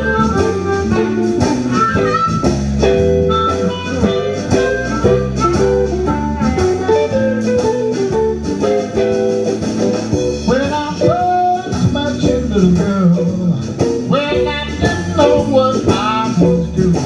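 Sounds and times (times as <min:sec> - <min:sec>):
bass line: 0:00.0 - 0:17.0
blues band playing live: 0:00.0 - 0:17.0
guitar with bent notes: 0:00.0 - 0:17.0.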